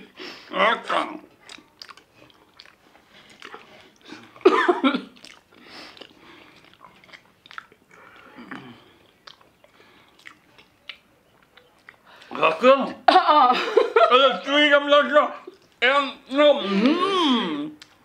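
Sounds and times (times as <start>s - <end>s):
people chewing and swallowing: 0.9s - 12.4s, 15.4s - 15.8s, 16.6s - 18.0s
lip smacks: 1.4s - 4.4s, 5.1s - 12.4s, 17.7s - 18.0s
vocal grunt or cough: 4.2s - 5.2s.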